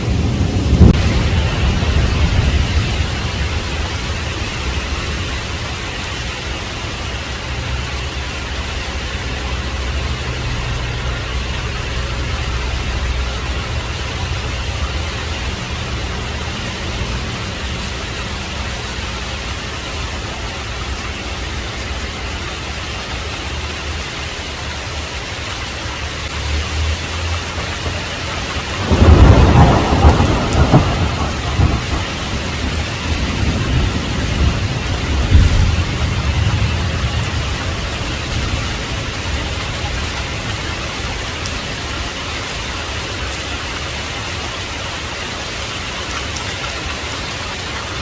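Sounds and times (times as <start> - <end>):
rolling thunderclap: 0.0 - 5.6, 27.5 - 40.6
heavy rain: 0.0 - 48.0.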